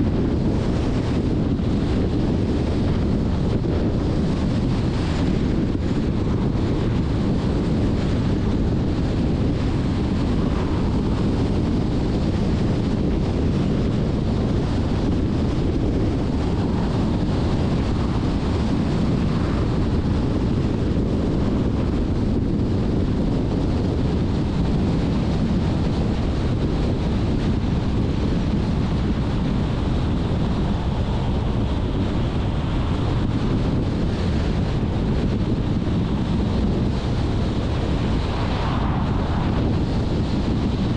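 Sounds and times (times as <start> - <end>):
wind buffeting microphone: 0.0 - 40.9
car road noise: 26.0 - 40.9.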